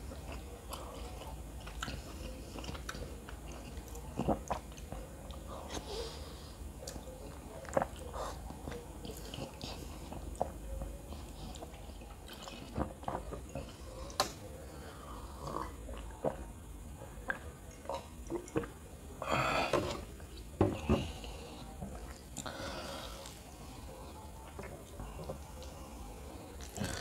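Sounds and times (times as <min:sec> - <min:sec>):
close chewing: 0:00.0 - 0:06.2, 0:06.8 - 0:16.6.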